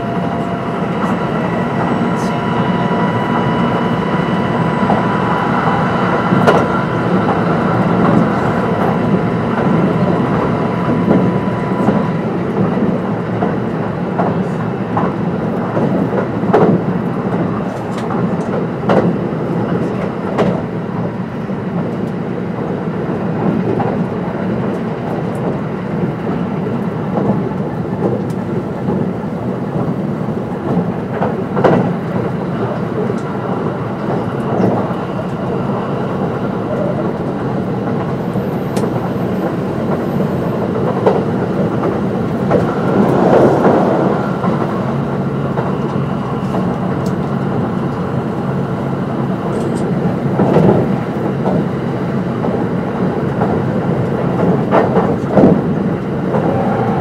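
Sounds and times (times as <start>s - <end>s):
steady high whine: 0.0s - 13.2s, 38.2s - 47.6s
train wheels rumbling on rail: 0.0s - 57.0s.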